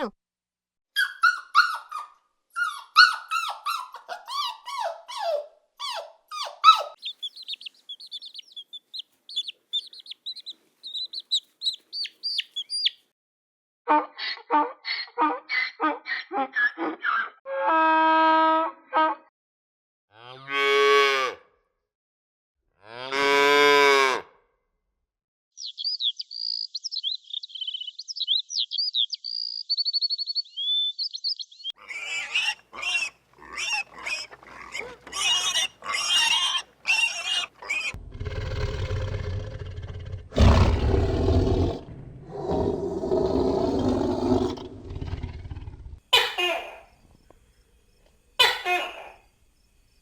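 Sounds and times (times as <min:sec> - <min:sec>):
young farm animals calling: 0:01.0 - 0:13.0, 0:25.6 - 0:39.0
high quick peeping: 0:07.0 - 0:13.0
low rumble: 0:38.0 - 0:38.6.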